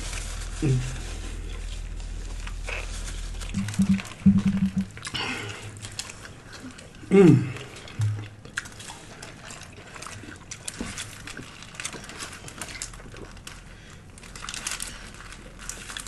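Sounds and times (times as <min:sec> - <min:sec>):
wet chewing and smacking: 0:05.8 - 0:14.4.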